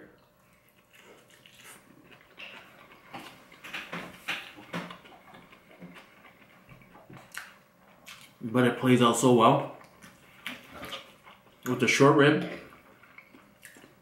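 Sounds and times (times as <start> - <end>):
person chewing food: 0.1 - 8.4, 9.7 - 11.7, 12.5 - 14.0
wet mouth clicks and smacks: 7.2 - 8.4.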